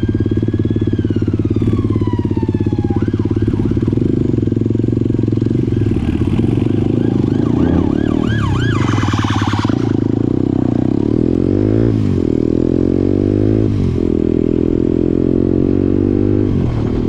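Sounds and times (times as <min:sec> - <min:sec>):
siren wailing: 0:00.0 - 0:04.7, 0:05.4 - 0:10.4
motorcycle engine running: 0:00.0 - 0:17.0.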